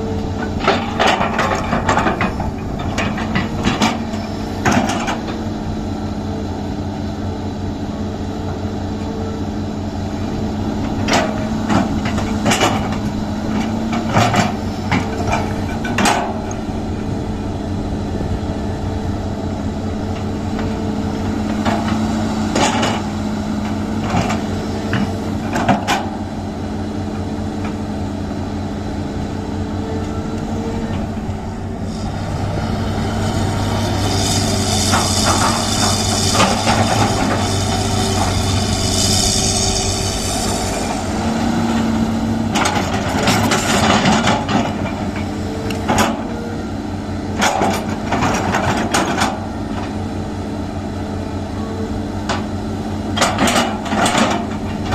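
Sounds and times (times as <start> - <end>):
excavator diesel engine: 0.0 - 54.9
hiss: 34.0 - 41.0.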